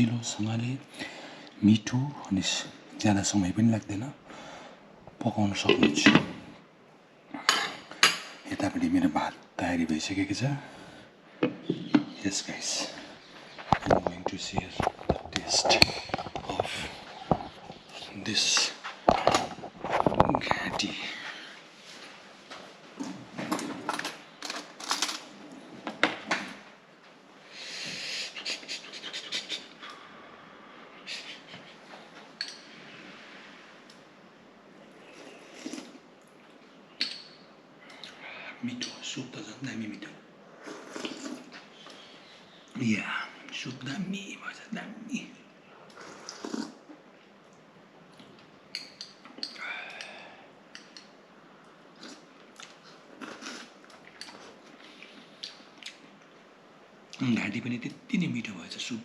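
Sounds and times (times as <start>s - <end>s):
mouth clicks and smacks: 28.3s - 30.0s, 47.4s - 50.1s, 52.0s - 56.3s
person slurping soup: 35.1s - 36.0s, 40.6s - 41.5s, 45.9s - 46.8s
wet chewing and sucking: 45.9s - 46.8s.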